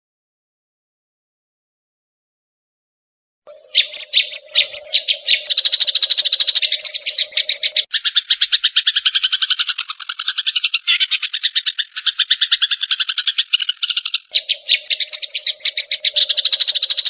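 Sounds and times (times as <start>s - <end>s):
sparrows chirping: 3.5s - 17.0s.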